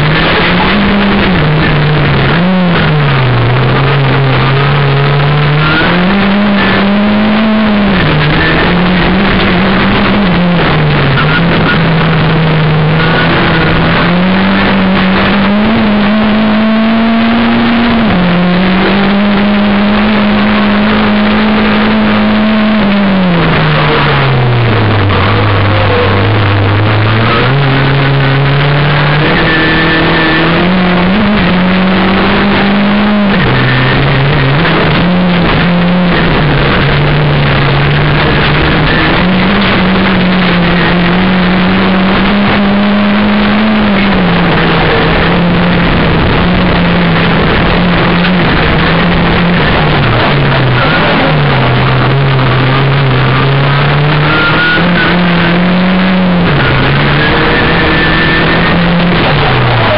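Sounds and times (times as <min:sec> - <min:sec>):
race car engine revving: 0:00.0 - 0:59.9
rough road and cabin noise: 0:00.0 - 0:59.9.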